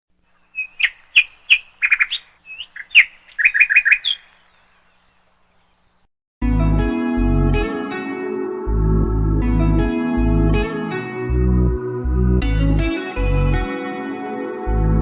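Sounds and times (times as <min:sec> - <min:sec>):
bird chirping: 0:00.2 - 0:06.1
music: 0:06.4 - 0:15.0.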